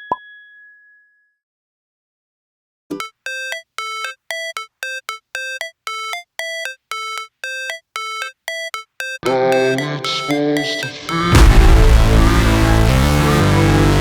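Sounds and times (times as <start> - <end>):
synthesizer beeping notes: 3.0 - 14.0.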